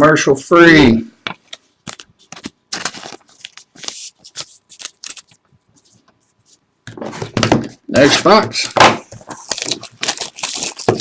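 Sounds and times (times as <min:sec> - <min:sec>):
card packaging rustling: 0:01.4 - 0:06.1, 0:08.0 - 0:11.0.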